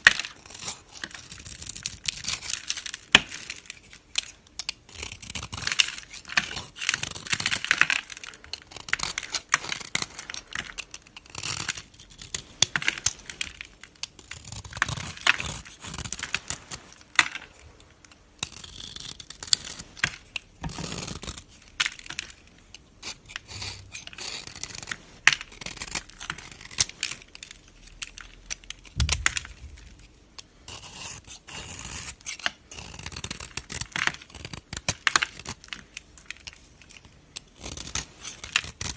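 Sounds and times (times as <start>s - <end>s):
knife cutting bar soap: 0.1s - 38.9s.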